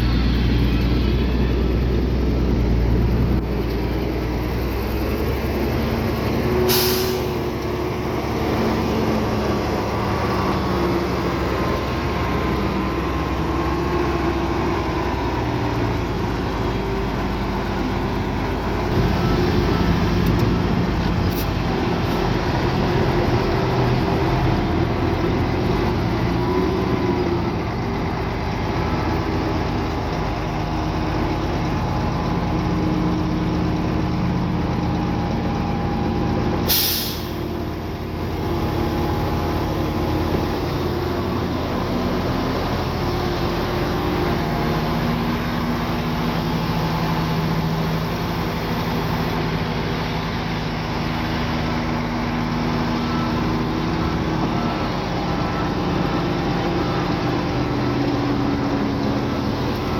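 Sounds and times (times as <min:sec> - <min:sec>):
heavy diesel machinery running: 0:00.0 - 0:59.9
air hiss: 0:06.7 - 0:07.3, 0:36.7 - 0:37.4.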